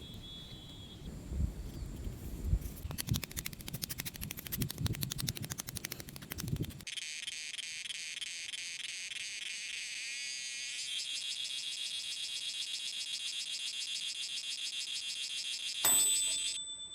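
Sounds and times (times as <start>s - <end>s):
insects chirring: 0.0s - 4.1s, 5.2s - 16.1s
rapid clicking: 2.8s - 6.9s.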